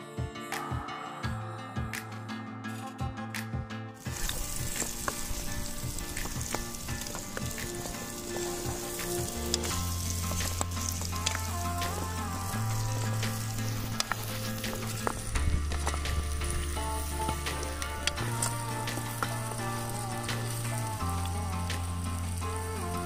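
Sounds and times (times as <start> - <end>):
food sizzling in a pan: 4.0 - 23.0
spatula scraping a pan: 4.1 - 20.9.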